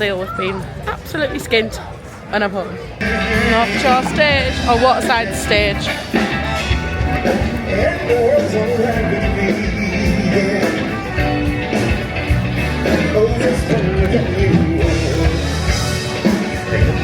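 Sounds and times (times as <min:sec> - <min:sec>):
bass beat: 0:03.0 - 0:17.0
live rock band playing: 0:03.0 - 0:17.0
person singing: 0:03.0 - 0:17.0.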